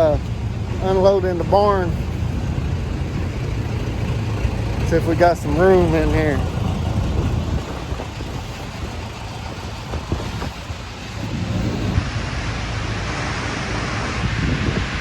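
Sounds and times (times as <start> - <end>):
truck engine idling: 0.0 - 14.1
wind noise on microphone: 0.0 - 15.0.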